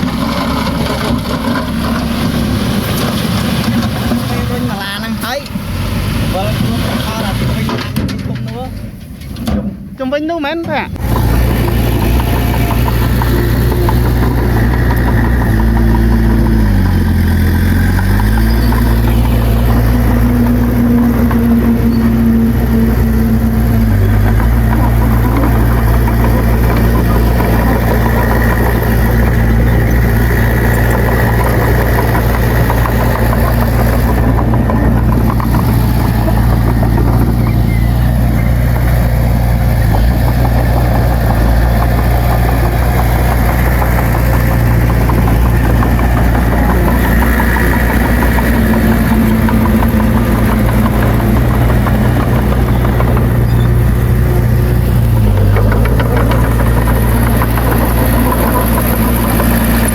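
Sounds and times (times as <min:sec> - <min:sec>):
heavy diesel engine running: 0:00.0 - 0:09.3, 0:10.7 - 0:59.9.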